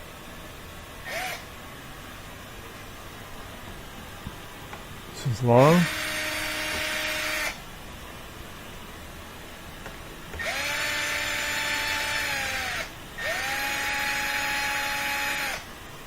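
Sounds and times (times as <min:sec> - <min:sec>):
power drill whining: 0:10.4 - 0:15.6.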